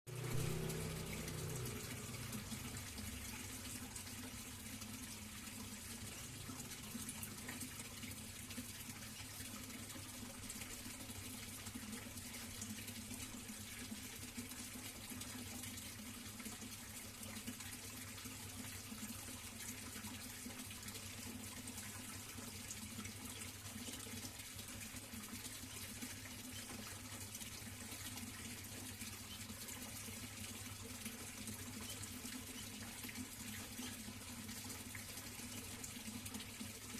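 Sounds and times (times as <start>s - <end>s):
low even hum: 0.1s - 4.0s
running water: 0.1s - 36.9s.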